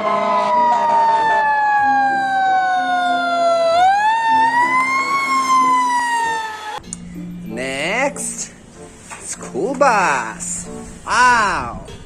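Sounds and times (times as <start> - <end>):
toy electronic siren wailing: 0.0 - 6.8.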